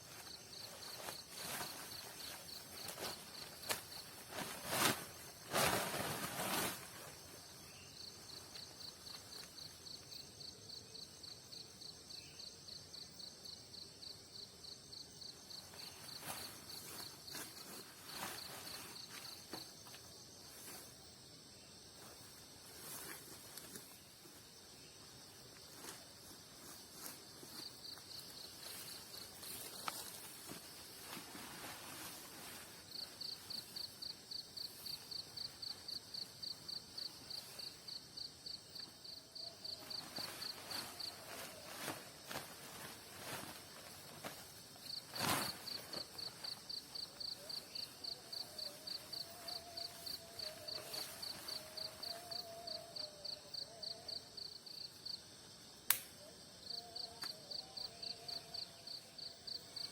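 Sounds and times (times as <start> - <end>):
rustling or crunching: 0.0 - 7.2, 26.6 - 33.9, 39.6 - 52.4
cricket chirping: 0.0 - 59.9
night insects: 0.0 - 59.9.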